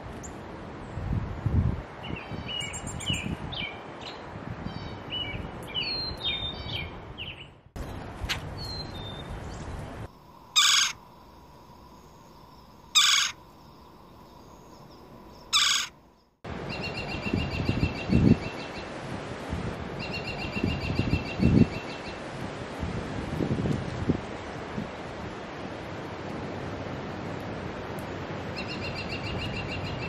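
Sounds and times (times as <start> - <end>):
outdoor background noise: 0.0 - 30.0
bird giving harsh calls: 10.5 - 11.0, 12.9 - 13.4, 15.3 - 16.0.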